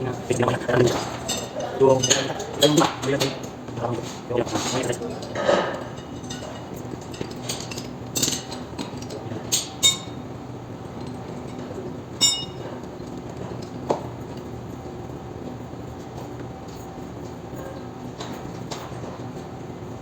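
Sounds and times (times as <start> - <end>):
steady low hum: 0.0 - 20.0
metal tools clinking and knocking: 0.3 - 10.2, 12.2 - 12.6.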